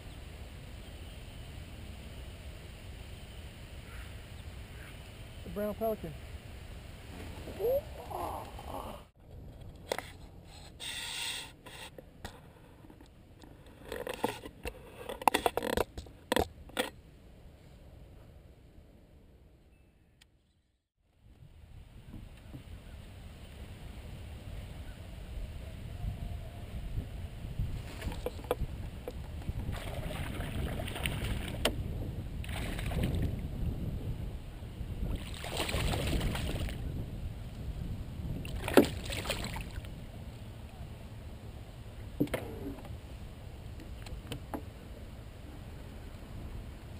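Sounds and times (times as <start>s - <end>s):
scraping and rubbing: 9.6s - 16.9s
rasp: 10.5s - 12.0s
wind rumble on microphone: 21.2s - 46.9s
paddle strokes swishing water: 27.8s - 31.7s.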